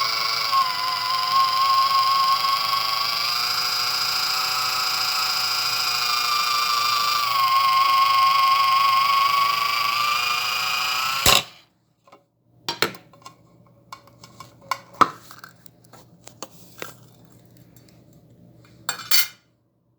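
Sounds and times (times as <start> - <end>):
can opener motor whining: 0.0 - 11.6.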